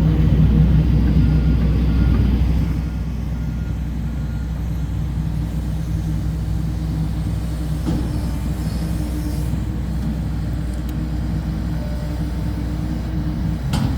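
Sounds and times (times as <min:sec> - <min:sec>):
construction machinery engine droning: 0:00.0 - 0:13.9
reversing alarm beeps: 0:01.0 - 0:05.4.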